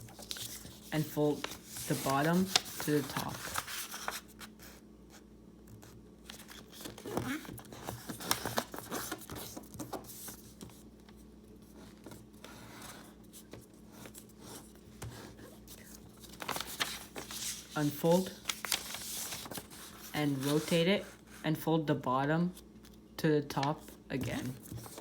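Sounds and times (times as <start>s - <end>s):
paper being folded and creased: 0.0s - 4.5s, 6.2s - 10.8s, 11.8s - 21.4s, 24.4s - 25.0s.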